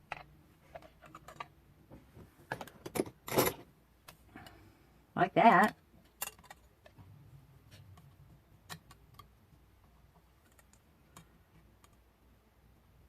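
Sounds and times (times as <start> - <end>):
light clicks and taps of tools: 7.7 - 12.1.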